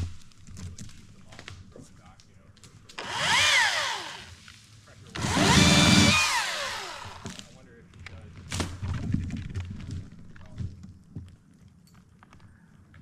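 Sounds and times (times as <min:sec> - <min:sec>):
electric chainsaw motor whine: 0:03.0 - 0:04.4, 0:05.2 - 0:07.4.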